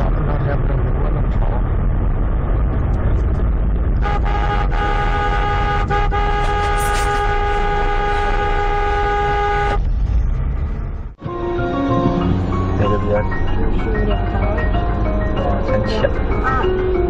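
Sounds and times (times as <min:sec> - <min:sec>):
road and engine rumble: 0:00.0 - 0:17.0
car horn honking: 0:04.0 - 0:09.8.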